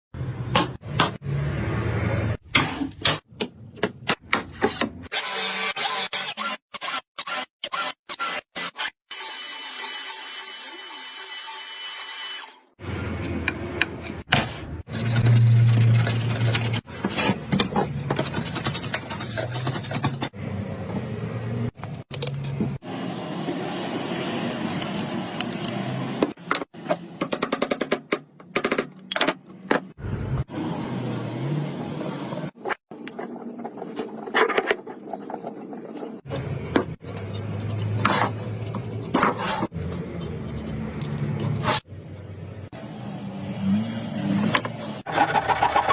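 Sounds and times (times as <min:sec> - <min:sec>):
tools scraping on wood: 0:30.6 - 0:41.9.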